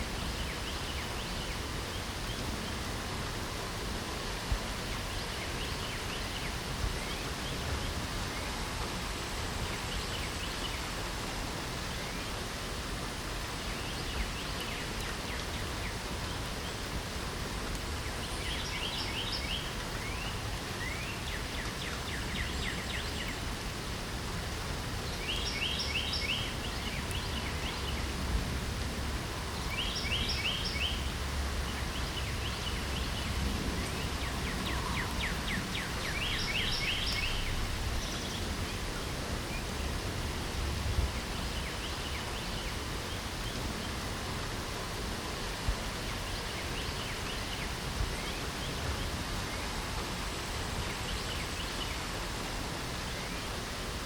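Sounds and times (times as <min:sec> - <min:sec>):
steady rain: 0:00.0 - 0:54.0
songbird singing quick notes: 0:32.0 - 0:38.5.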